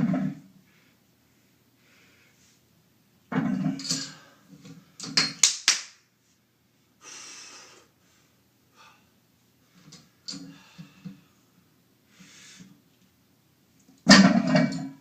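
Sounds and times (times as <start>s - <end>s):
man breathing hard: 7.0s - 9.2s, 10.4s - 11.5s, 12.1s - 12.8s.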